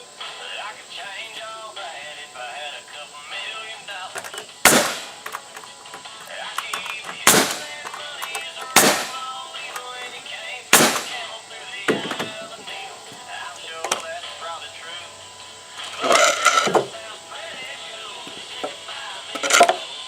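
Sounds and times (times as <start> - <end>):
music with singing: 0.0 - 20.0
loud sharp bangs: 4.6 - 5.3, 7.0 - 8.0, 8.6 - 9.4, 10.7 - 12.4.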